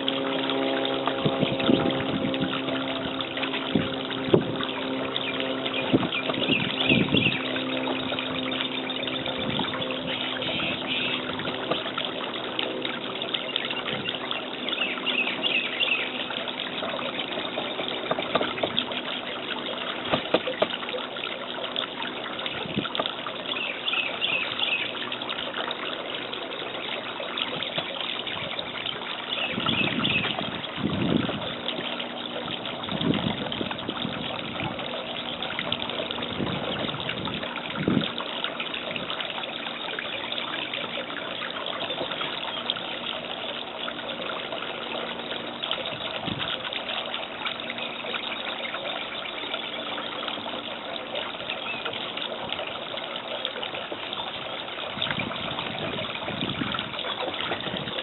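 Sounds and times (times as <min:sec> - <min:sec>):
rushing trickling water: 0:00.0 - 0:58.0
birds chattering: 0:04.8 - 0:22.4, 0:23.2 - 0:33.2.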